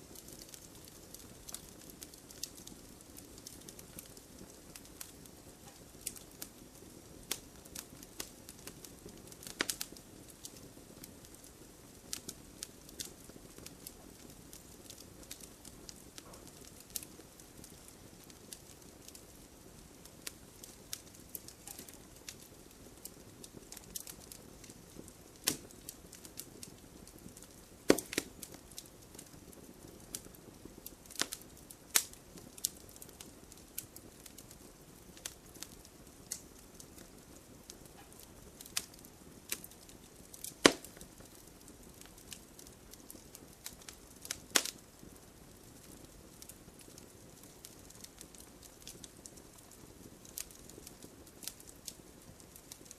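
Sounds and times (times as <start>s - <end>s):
wood fire crackling: 0.0s - 52.9s
sharp pops and snaps: 20.2s - 22.4s, 25.4s - 26.7s, 27.3s - 28.6s, 31.0s - 33.2s, 38.0s - 41.4s, 42.1s - 44.8s.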